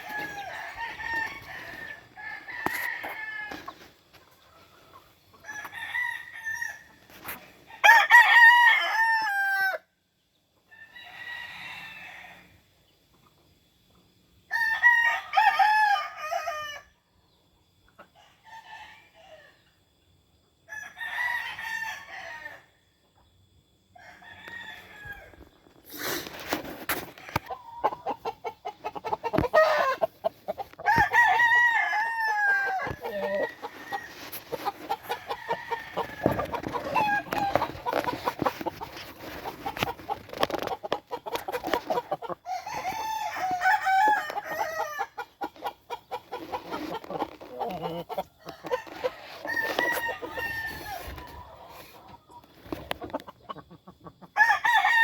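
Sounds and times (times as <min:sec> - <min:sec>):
roosters crowing: 0:00.0 - 0:04.1, 0:05.4 - 0:07.1, 0:07.8 - 0:09.9, 0:14.5 - 0:16.9, 0:24.0 - 0:52.0, 0:54.2 - 0:55.0
chickens clucking: 0:00.0 - 0:05.7, 0:25.6 - 0:54.4
rustling: 0:32.8 - 0:42.2.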